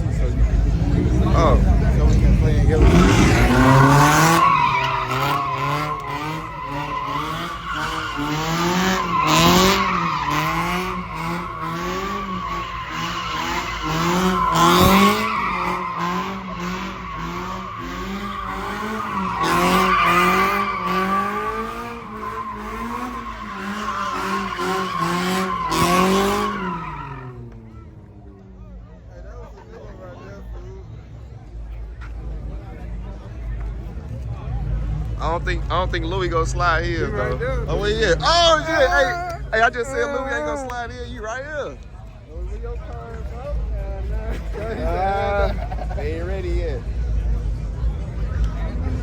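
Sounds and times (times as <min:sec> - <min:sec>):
car engine revving: 0:00.0 - 0:28.5
tyres squealing: 0:02.8 - 0:27.4.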